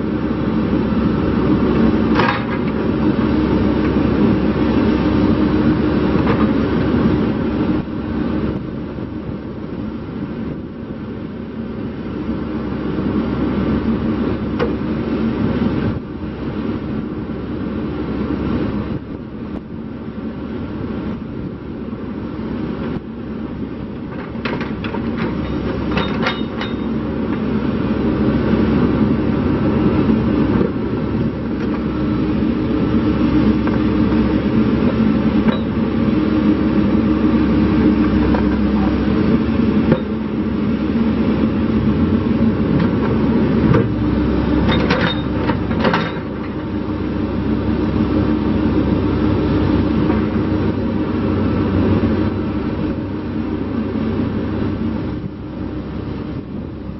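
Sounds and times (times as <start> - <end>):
diesel engine running: 0.0 - 56.9
metallic clanks: 24.2 - 27.0.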